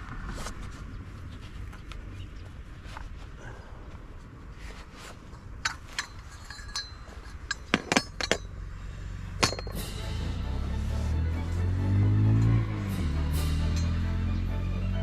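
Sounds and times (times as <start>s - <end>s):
low steady rumble: 0.0s - 15.0s
light metallic clinks and knocks: 5.3s - 8.8s, 9.4s - 10.4s.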